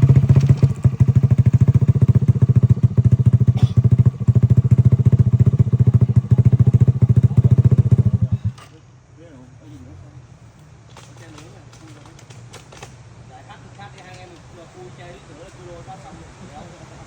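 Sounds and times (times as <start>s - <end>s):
motorcycle engine puttering: 0.0s - 8.8s, 10.8s - 13.0s.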